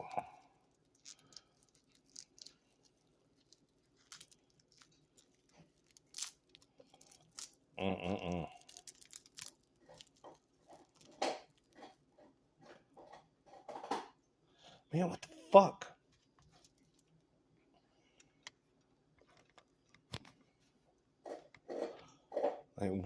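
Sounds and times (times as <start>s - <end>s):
person grunting: 0.0s - 0.4s, 7.8s - 8.7s
plastic wrap crinkling and tearing: 0.0s - 7.7s, 8.4s - 11.9s.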